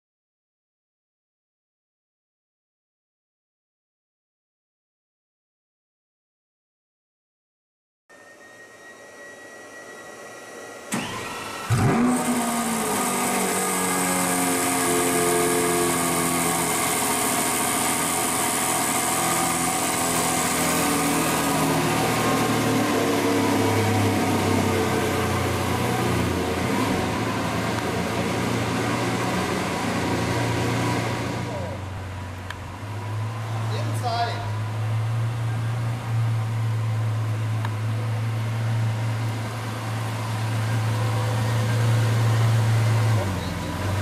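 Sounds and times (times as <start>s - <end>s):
car engine starting and idling: 9.7s - 44.0s.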